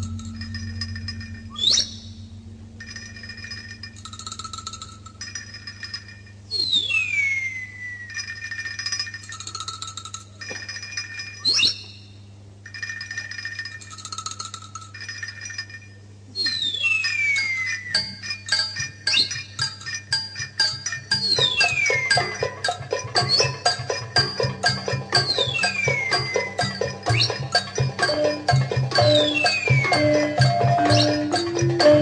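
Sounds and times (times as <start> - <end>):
steady low hum: 0.0 - 6.6
rising and falling whistles: 1.3 - 2.3, 6.5 - 8.4, 11.4 - 11.9, 16.4 - 18.2, 21.3 - 22.4, 25.2 - 27.6, 29.0 - 31.5
bird-like chirping: 1.4 - 2.3, 6.5 - 7.8, 11.4 - 12.1, 16.4 - 18.0, 21.2 - 22.3, 25.2 - 27.7, 29.0 - 31.4.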